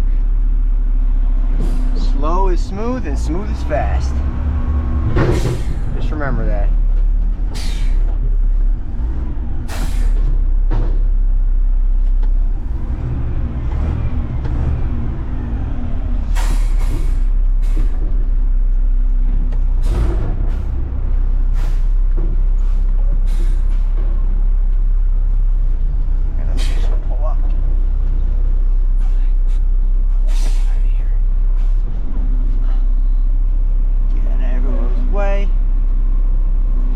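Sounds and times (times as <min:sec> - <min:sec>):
garbage truck diesel engine rumbling: 0:00.0 - 0:36.9
air brake hisses: 0:07.5 - 0:08.1, 0:09.7 - 0:10.3, 0:16.3 - 0:18.0, 0:21.5 - 0:22.0, 0:22.6 - 0:24.0, 0:26.6 - 0:27.0, 0:29.0 - 0:30.9.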